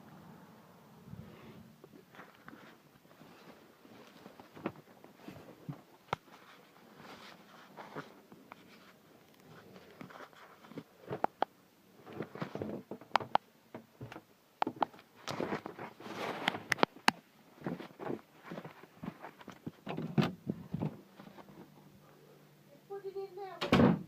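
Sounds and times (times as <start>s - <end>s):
rustling: 1.1s - 13.1s, 14.8s - 22.4s.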